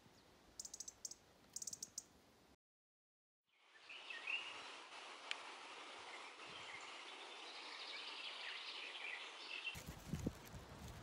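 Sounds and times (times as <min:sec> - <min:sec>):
songbirds chirping and trilling: 0:00.0 - 0:02.1, 0:03.5 - 0:09.8
faint outdoor hiss: 0:00.0 - 0:02.6, 0:03.5 - 0:11.0.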